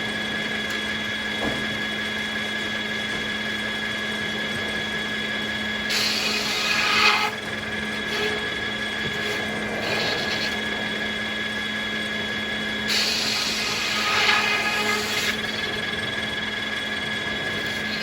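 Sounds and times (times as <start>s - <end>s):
sawmill blade humming: 0.0s - 18.0s
saw blade hissing through log: 5.9s - 7.4s, 9.2s - 10.6s, 12.9s - 15.5s, 17.6s - 18.0s.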